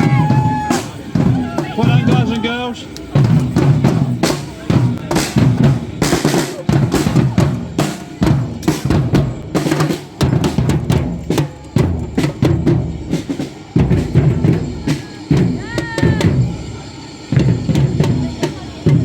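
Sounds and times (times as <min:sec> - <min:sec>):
marching drum band: 0:00.0 - 0:19.0.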